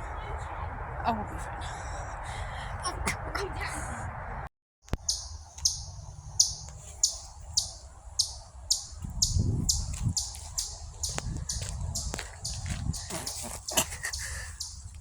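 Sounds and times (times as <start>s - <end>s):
bird chirping: 4.9s - 15.0s.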